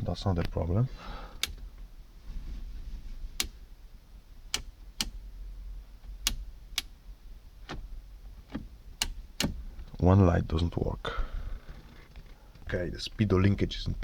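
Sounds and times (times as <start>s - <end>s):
dashboard switches clicking: 1.4s - 1.9s, 3.3s - 3.7s, 4.5s - 5.3s, 6.0s - 7.0s, 7.6s - 10.0s.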